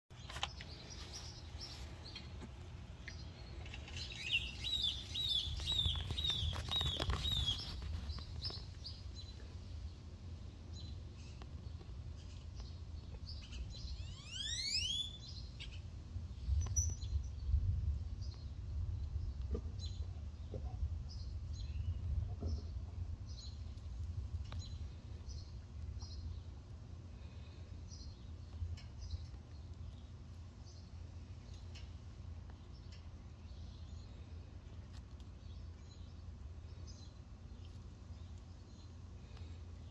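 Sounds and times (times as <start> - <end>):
birds chirping: 0.1 - 15.9
falling whistles: 14.1 - 15.2.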